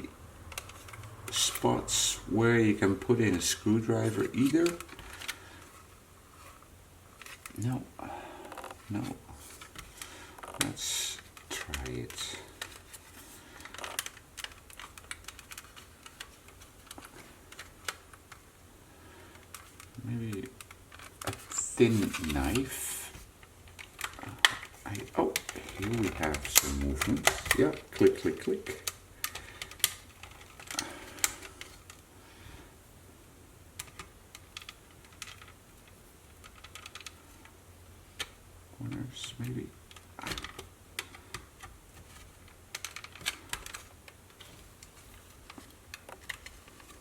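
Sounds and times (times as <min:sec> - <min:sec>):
plastic scraping: 0:02.8 - 0:18.3, 0:19.3 - 0:32.0
plastic clips clicking: 0:23.7 - 0:32.0.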